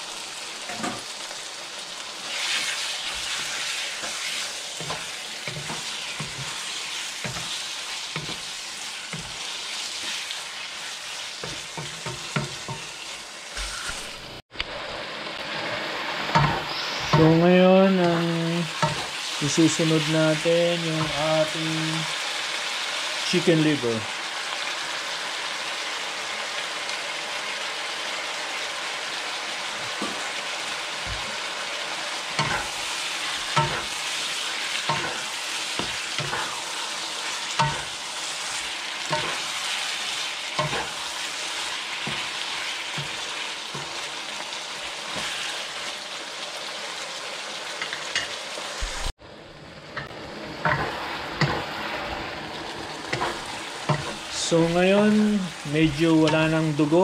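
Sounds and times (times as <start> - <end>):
chicken sizzling in butter: 0.0 - 57.0
spatula scraping pan: 2.2 - 14.2, 15.5 - 17.4, 18.0 - 20.1, 32.2 - 44.2, 50.0 - 54.4.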